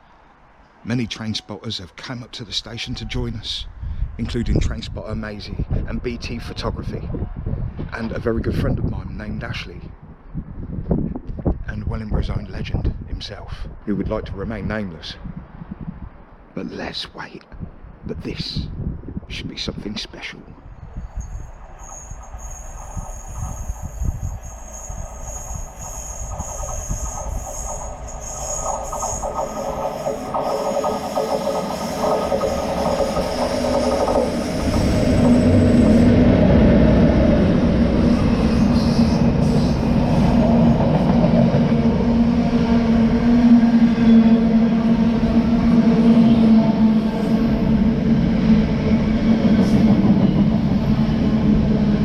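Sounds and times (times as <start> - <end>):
freight train rumble: 20.1 - 52.0
high ringing from rails: 21.0 - 51.8
locomotive engine: 21.1 - 52.0.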